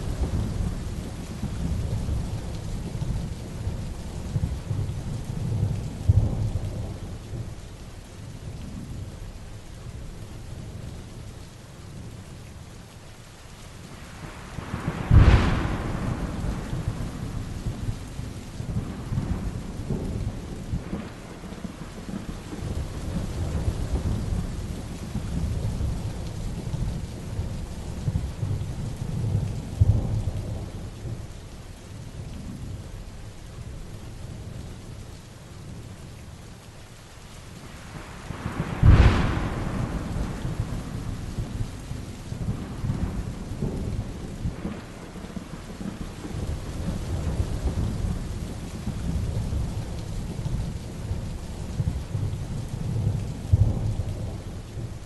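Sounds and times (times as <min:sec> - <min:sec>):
rolling thunder rumbling: 0:00.0 - 0:07.6, 0:14.1 - 0:31.4, 0:37.6 - 0:55.0
heavy rain falling: 0:00.0 - 0:55.0
sharp thunderclap: 0:14.6 - 0:27.0, 0:38.0 - 0:50.0.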